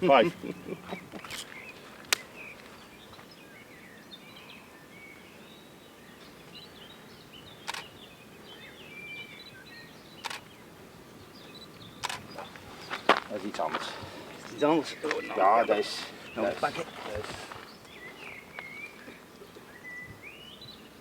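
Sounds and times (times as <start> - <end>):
outdoor background noise: 0.0 - 21.0
small birds chirping: 0.0 - 21.0
sharp click: 7.7 - 7.9.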